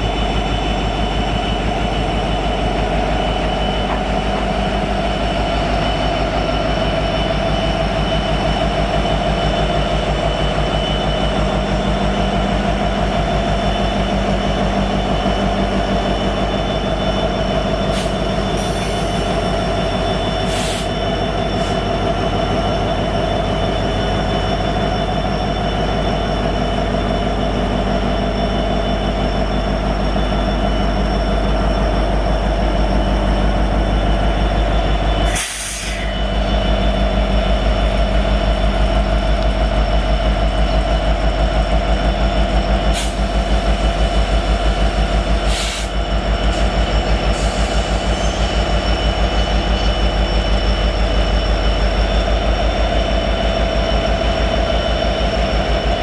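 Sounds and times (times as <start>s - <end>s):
freight train wagons rolling: 0.0s - 56.0s
high-pitched wheel squeal: 45.2s - 56.0s.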